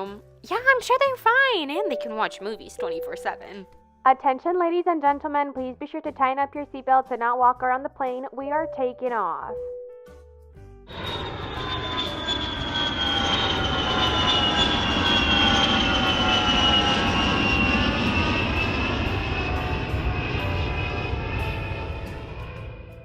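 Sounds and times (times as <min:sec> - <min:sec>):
jet airliner taking off: 0:10.9 - 0:23.0.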